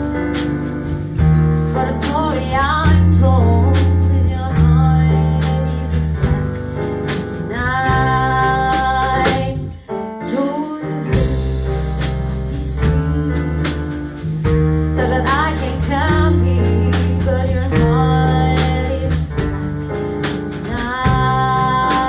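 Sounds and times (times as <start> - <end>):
live band playing: 0.0 - 22.0.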